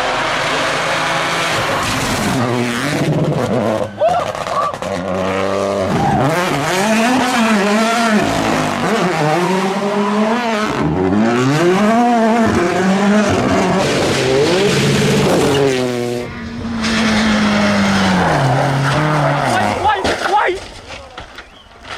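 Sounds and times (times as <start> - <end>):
rally car engine revving: 0.0 - 20.8
tyres on gravel: 17.0 - 21.9.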